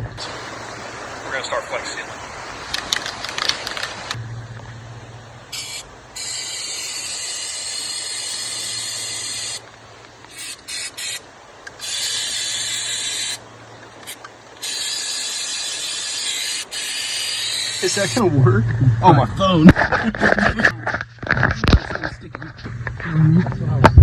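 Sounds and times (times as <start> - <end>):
steady low hum: 0.0 - 24.0
aerosol can spraying: 5.5 - 9.6, 10.3 - 11.2, 11.8 - 13.4, 14.0 - 18.2.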